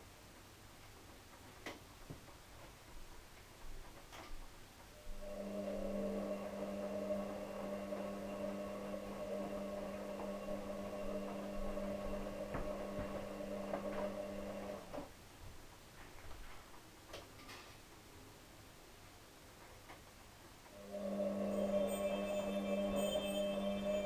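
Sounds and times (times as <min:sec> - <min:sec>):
electric appliance humming: 0:05.0 - 0:15.1, 0:20.7 - 0:24.0.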